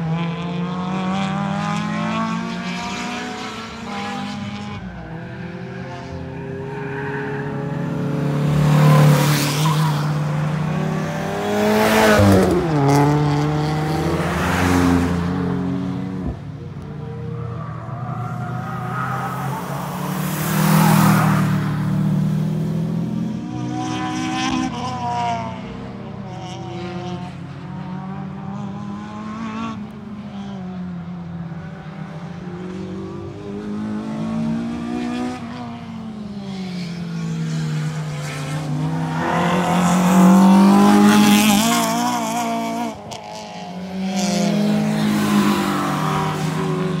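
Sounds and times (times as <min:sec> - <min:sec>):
car engine revving: 0:37.7 - 0:47.0.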